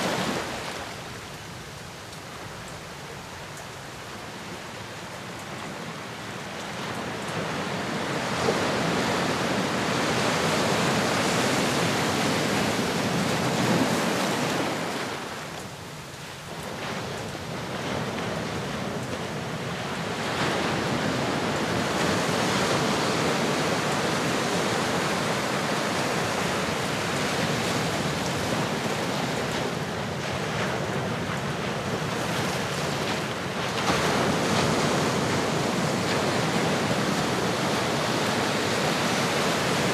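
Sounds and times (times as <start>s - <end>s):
ocean waves breaking: 0.0s - 1.4s, 5.6s - 39.9s.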